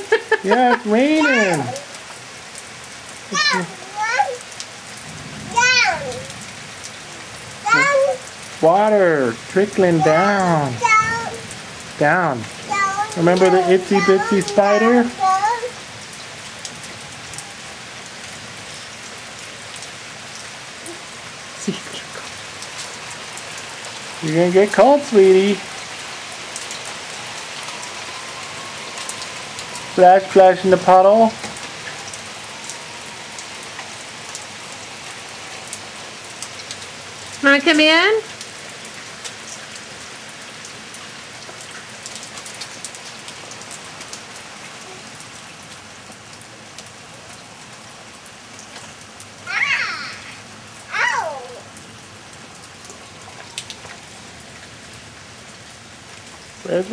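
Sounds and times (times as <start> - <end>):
water dripping: 0.0 - 17.7, 40.6 - 55.1
rain pattering: 0.0 - 56.9.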